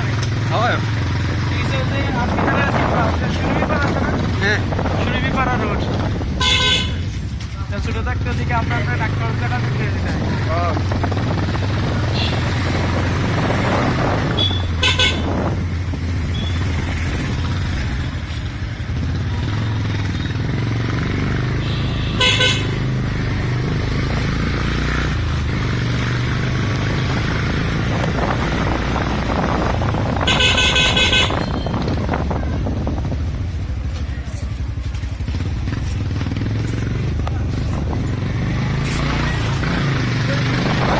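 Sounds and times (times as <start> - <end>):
motorcycle engine running: 0.0 - 40.9
vehicle horns honking: 6.3 - 7.2, 12.1 - 12.6, 14.3 - 15.5, 16.3 - 16.7, 21.5 - 23.0, 30.1 - 32.1.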